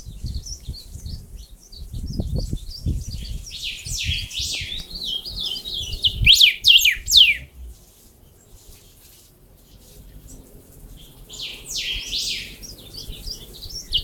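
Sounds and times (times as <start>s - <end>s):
songbird warbling: 3.5s - 8.1s, 11.3s - 14.0s
bird falling whistles: 6.1s - 7.5s.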